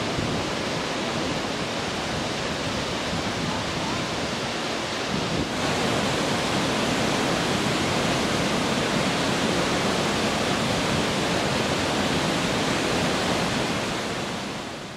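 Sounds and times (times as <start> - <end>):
waterfall rushing: 0.0 - 14.9.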